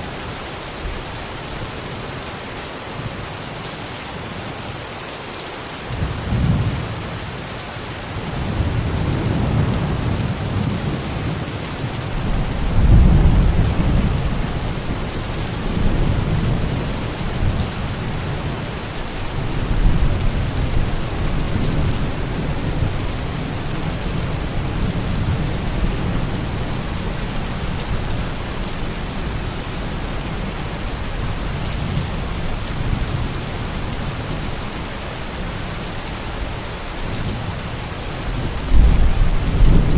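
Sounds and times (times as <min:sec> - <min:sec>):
steady heavy rain: 0:00.0 - 0:39.9
thunder rumbling: 0:08.4 - 0:18.6, 0:38.3 - 0:39.9.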